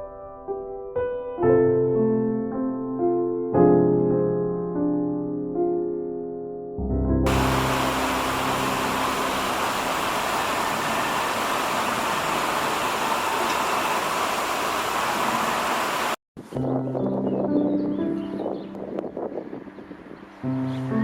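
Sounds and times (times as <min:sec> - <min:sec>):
piano music: 0:00.0 - 0:10.9, 0:16.5 - 0:21.0
water rushing: 0:07.3 - 0:16.2.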